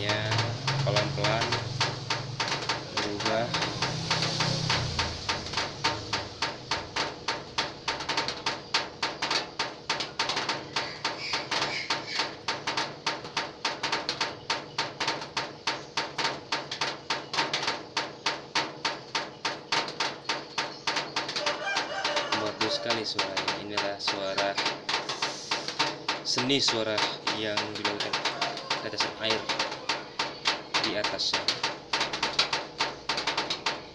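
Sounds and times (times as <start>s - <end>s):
rain dripping on metal roof: 0.0s - 33.9s.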